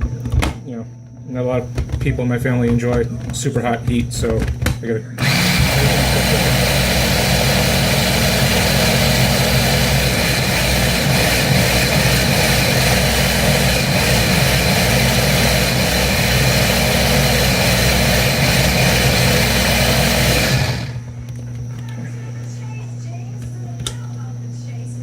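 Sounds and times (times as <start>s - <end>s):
food processor motor running: 5.2s - 21.1s.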